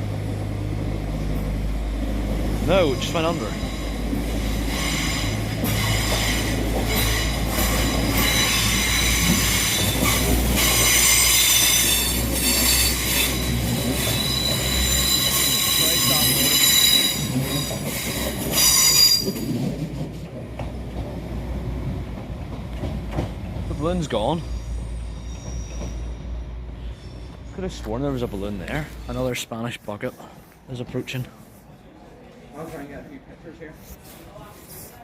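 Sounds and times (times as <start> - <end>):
train rumble: 0.0 - 35.0
train wheels squealing on rail: 2.6 - 19.8, 23.6 - 29.4.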